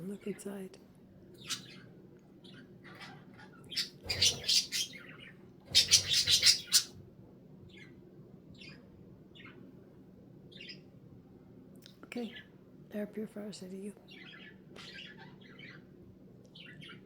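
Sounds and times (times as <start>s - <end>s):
budgerigar chattering and warbling: 1.4s - 1.8s, 2.9s - 5.0s, 5.7s - 6.9s.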